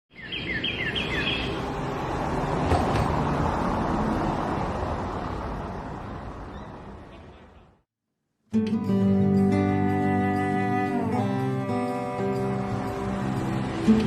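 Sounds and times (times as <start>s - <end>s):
bird-like chirps: 0.1s - 1.6s, 6.5s - 7.4s
distant traffic rumble: 0.1s - 7.8s.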